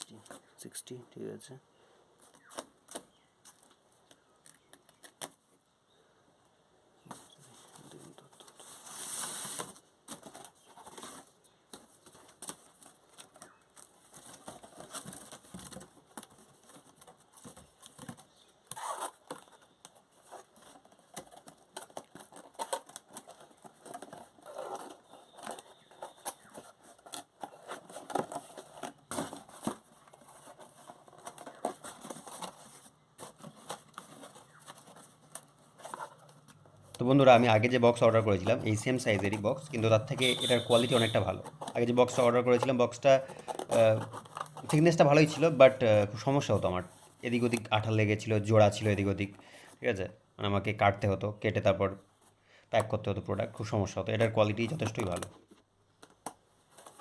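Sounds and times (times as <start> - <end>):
cardboard boxes rustling and tapping: 9.2 - 45.5.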